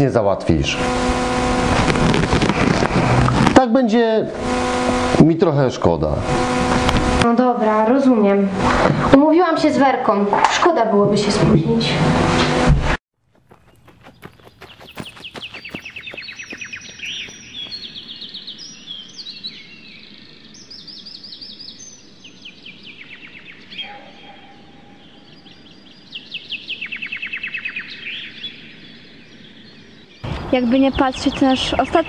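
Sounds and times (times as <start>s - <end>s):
birds singing rapid trills: 13.4s - 32.0s.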